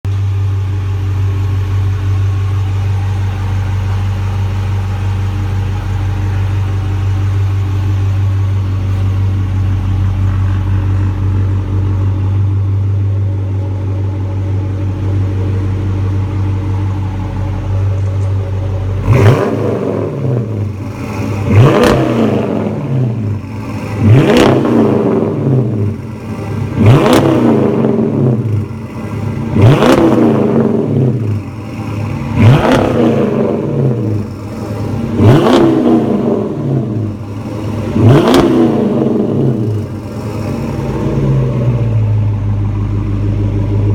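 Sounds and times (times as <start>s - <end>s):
car engine idling: 0.0s - 43.9s
car engine revving: 0.1s - 43.9s.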